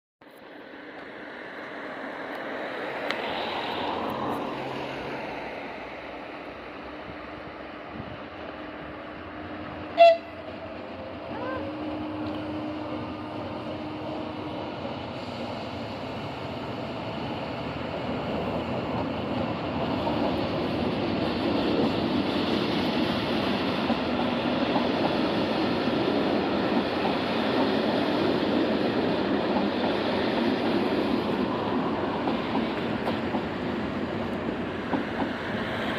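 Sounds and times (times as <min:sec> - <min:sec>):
train passing: 0:00.2 - 0:35.9
train horn: 0:09.7 - 0:10.6, 0:11.3 - 0:14.7.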